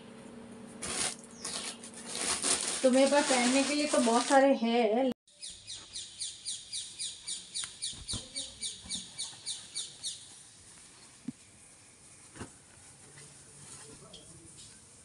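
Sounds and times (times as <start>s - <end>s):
bird chirping: 5.3s - 10.4s.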